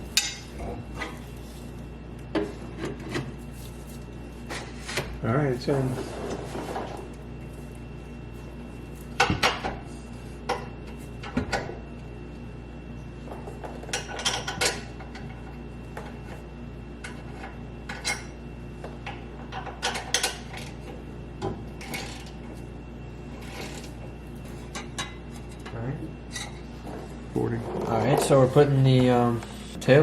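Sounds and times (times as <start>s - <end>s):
steady low hum: 0.0s - 30.0s
metal pipes and tools clanking: 0.1s - 1.2s, 13.8s - 15.4s, 17.0s - 18.4s, 19.1s - 20.8s, 24.6s - 29.2s.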